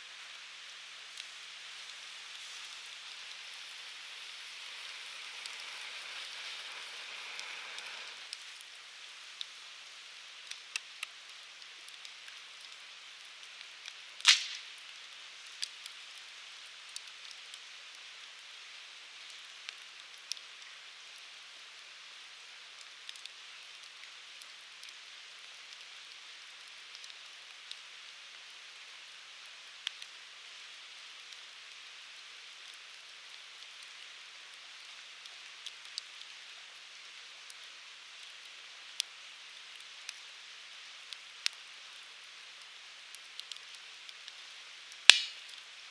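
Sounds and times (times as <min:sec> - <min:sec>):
wood fire crackling: 0:00.0 - 0:45.9
loud sharp pop: 0:14.2 - 0:14.8, 0:45.1 - 0:45.4.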